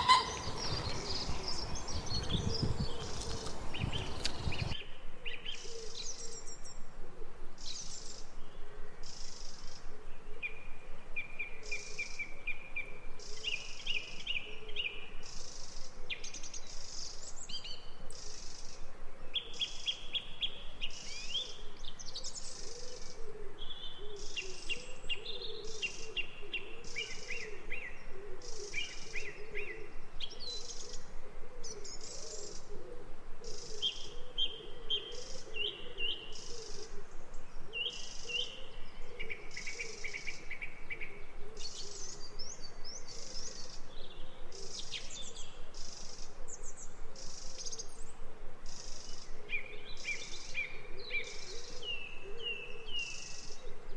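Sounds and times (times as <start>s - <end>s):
birds chirping and trilling: 0.0s - 4.8s.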